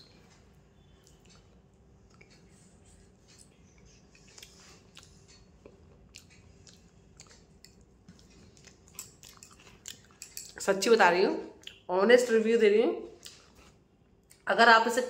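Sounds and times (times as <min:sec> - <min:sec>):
person chewing food: 0:00.2 - 0:10.6, 0:13.2 - 0:14.4.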